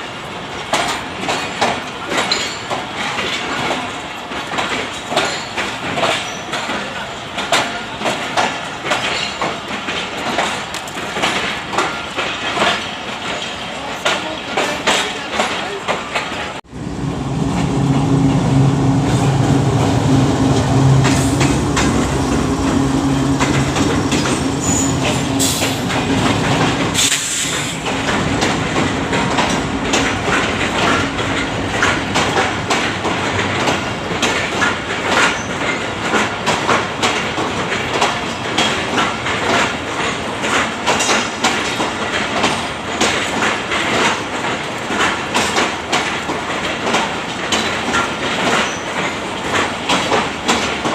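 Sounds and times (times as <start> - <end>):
train wheels clattering on rail joints: 0.0 - 16.6, 17.5 - 50.9
diesel locomotive engine hum: 16.6 - 39.8.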